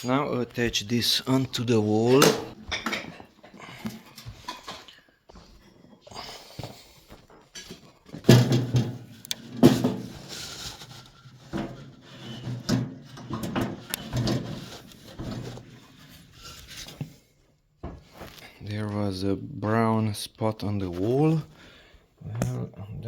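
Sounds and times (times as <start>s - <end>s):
metal heater body clattering: 2.0s - 3.2s, 7.6s - 15.9s.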